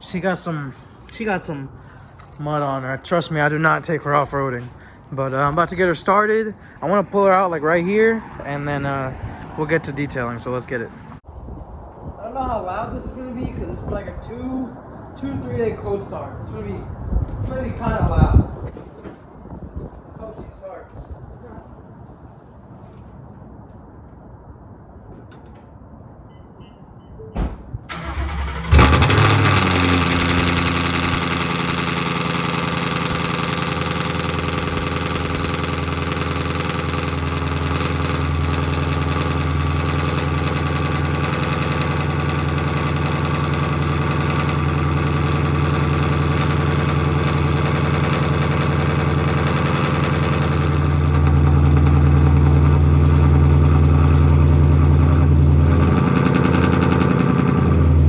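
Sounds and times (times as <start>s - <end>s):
car engine starting and idling: 27.9s - 58.0s
starter motor cranking: 27.9s - 58.0s.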